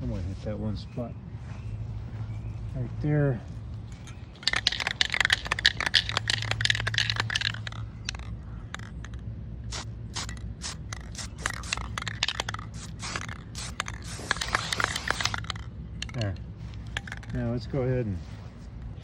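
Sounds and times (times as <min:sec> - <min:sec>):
handling clicks and scraping: 0:03.4 - 0:19.0
spray paint can hissing: 0:04.4 - 0:17.3.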